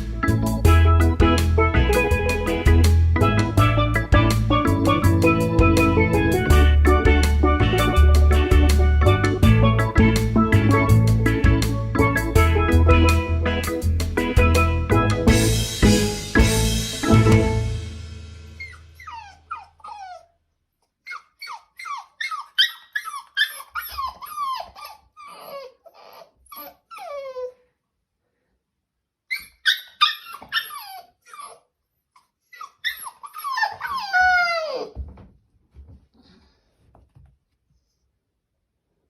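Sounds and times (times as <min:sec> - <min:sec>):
dog whining and yelping: 0:18.6 - 0:27.7, 0:29.3 - 0:35.0.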